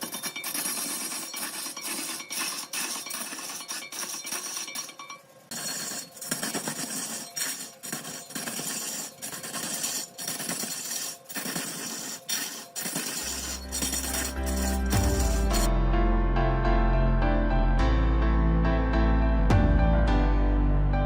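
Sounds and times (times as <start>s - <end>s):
lathe tool scraping wood: 0.0s - 15.7s
music with low sustained notes: 13.2s - 21.0s.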